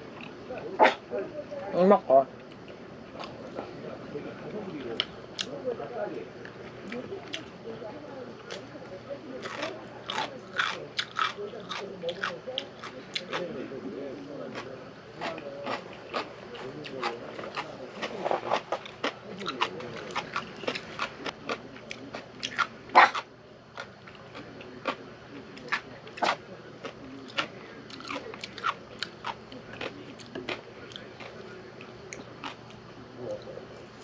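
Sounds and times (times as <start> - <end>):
crunchy food being chewed: 4.6 - 5.6, 8.4 - 8.8, 9.4 - 34.0.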